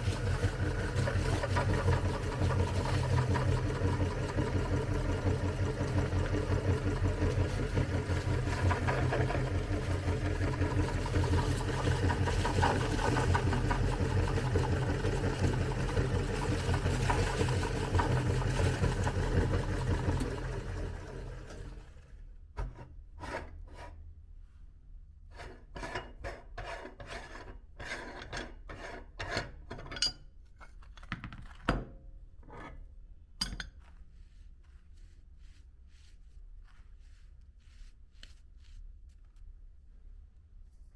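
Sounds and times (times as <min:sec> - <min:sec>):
electric meat grinder running: 0:00.0 - 0:22.1.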